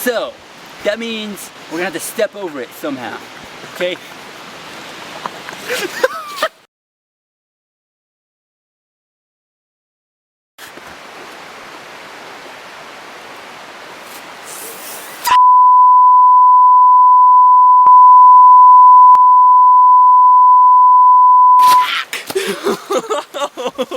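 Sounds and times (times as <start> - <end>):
faint steady hiss: 0.0 - 6.6
electronic beep tone: 15.3 - 21.9.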